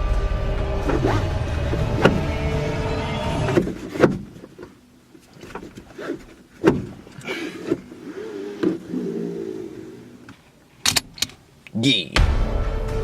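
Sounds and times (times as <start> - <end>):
steady low rumble: 0.0 - 3.5.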